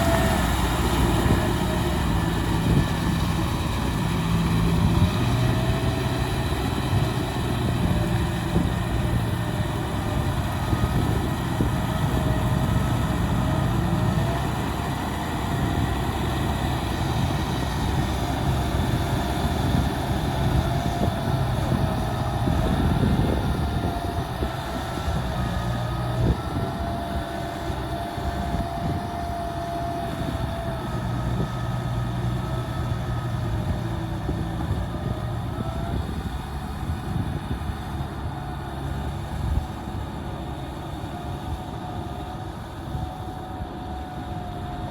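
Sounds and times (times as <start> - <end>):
diesel machinery engine running: 0.0 - 44.9.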